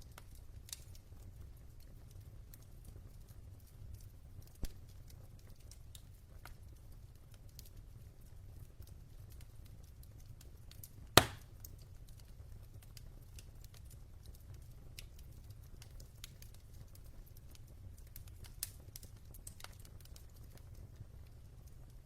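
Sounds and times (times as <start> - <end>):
wood fire crackling: 0.0 - 22.0
loud fire pop: 11.2 - 11.4.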